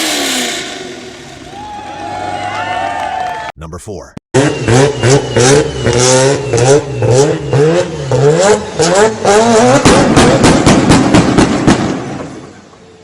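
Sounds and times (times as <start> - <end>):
car engine revving: 4.4 - 11.7.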